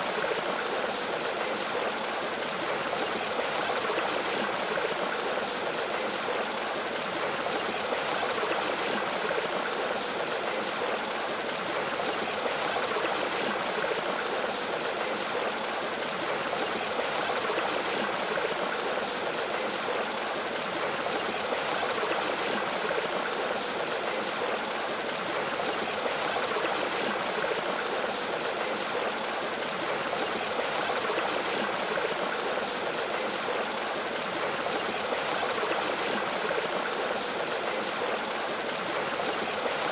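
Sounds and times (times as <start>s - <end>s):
small waterfall: 0.0s - 39.9s.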